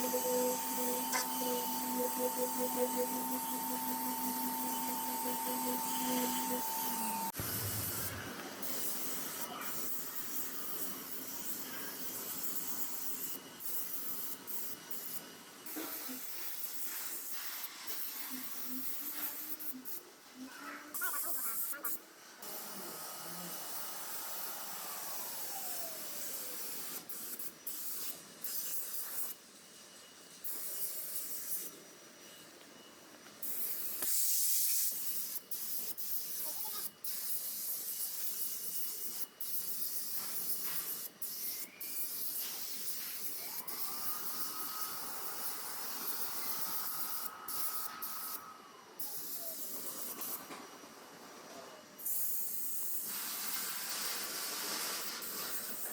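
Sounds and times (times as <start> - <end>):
air tool whine spinning down: 0.0 - 8.5, 22.5 - 27.1, 43.2 - 50.5
compressed air hiss: 0.0 - 20.0, 21.0 - 29.4, 33.4 - 50.5, 52.0 - 55.9.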